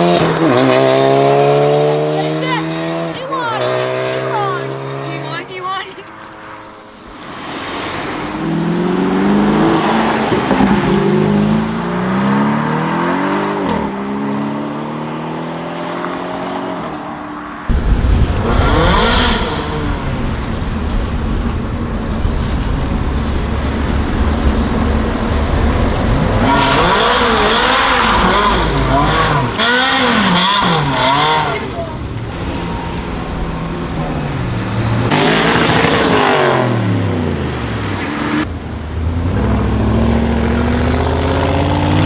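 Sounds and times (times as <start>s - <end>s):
car engines revving: 0.0s - 42.0s
deep engine rumble: 17.7s - 42.0s.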